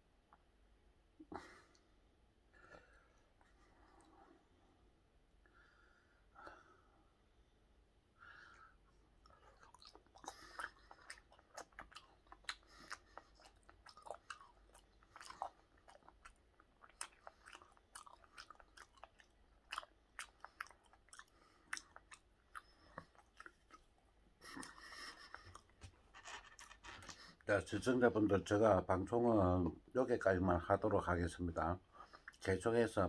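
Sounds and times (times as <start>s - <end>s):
faint wet chewing: 8.6s - 27.9s.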